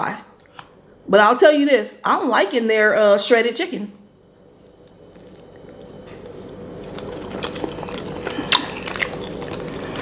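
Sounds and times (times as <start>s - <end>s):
close-up chewing: 4.8s - 10.0s.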